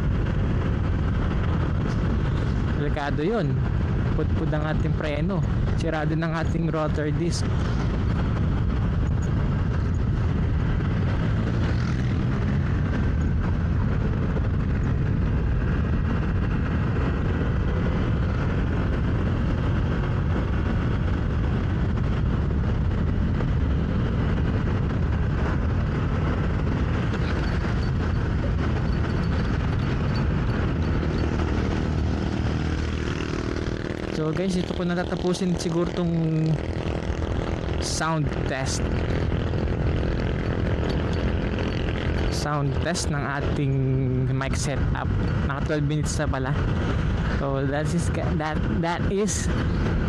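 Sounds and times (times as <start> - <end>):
wind rumble on microphone: 0.0 - 50.0
motorcycle engine: 6.8 - 42.8.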